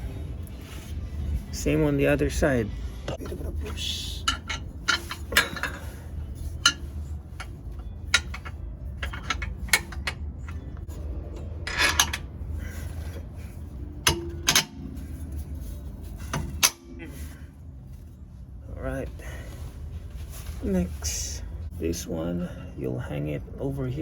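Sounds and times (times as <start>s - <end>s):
steady low hum: 0.0s - 24.0s
metal bolt clicking and scraping: 3.1s - 17.2s.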